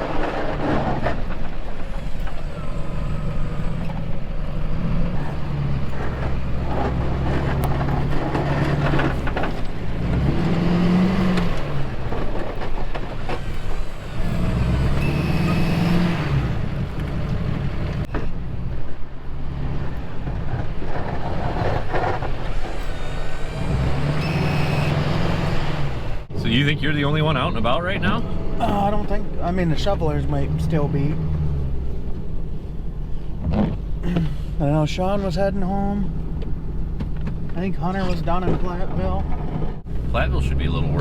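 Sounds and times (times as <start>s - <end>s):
truck engine revving: 0.0s - 37.0s, 37.6s - 41.0s.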